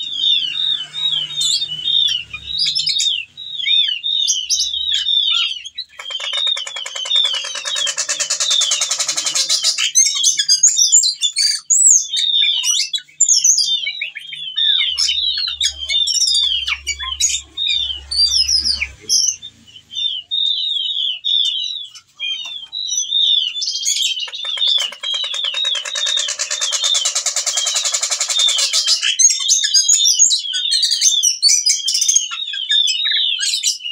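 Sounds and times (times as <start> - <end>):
thrush singing chirps and whistles: 0.0 - 33.9
harsh buzzing rattle: 24.4 - 29.0.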